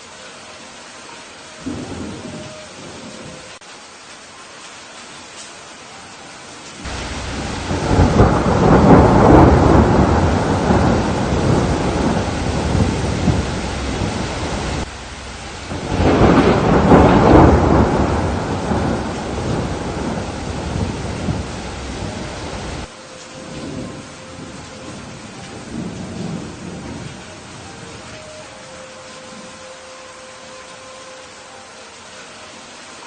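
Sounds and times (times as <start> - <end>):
steady rain: 0.0 - 33.0
rolling thunder: 1.6 - 3.4, 6.8 - 28.1.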